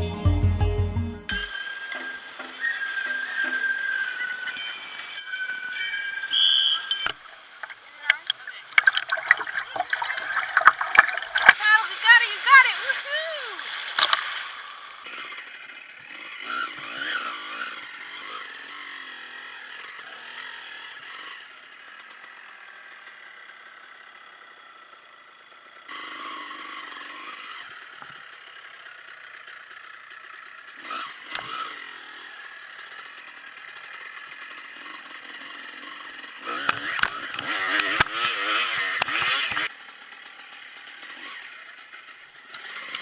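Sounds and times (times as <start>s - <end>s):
dirt bike engine revving: 1.4s - 43.0s
constant rattle: 3.2s - 12.4s.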